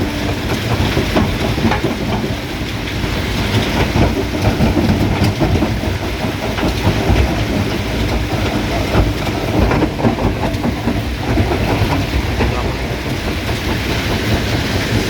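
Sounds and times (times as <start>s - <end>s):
low rumble: 6.5s - 15.0s.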